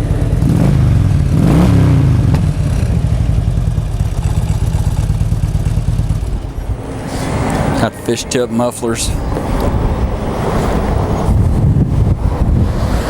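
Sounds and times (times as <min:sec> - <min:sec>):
motorcycle engine revving and idling: 0:00.0 - 0:08.0.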